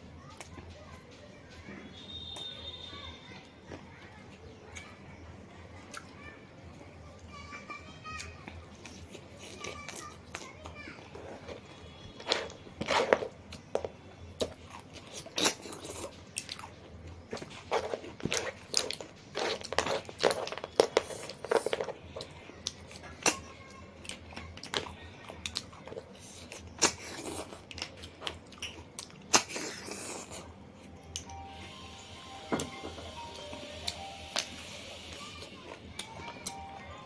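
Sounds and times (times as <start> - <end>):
person chewing and crunching food: 8.2 - 31.4.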